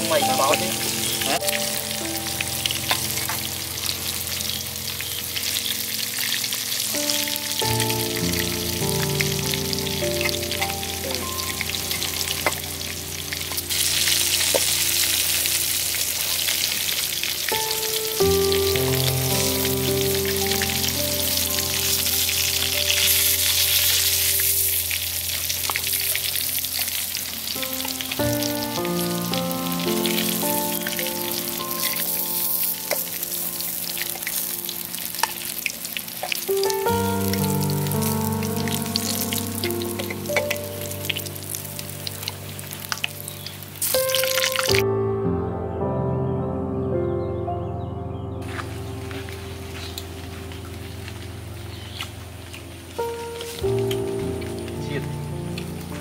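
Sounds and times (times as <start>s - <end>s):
meat sizzling in hot oil: 0.0s - 44.8s, 48.4s - 56.0s.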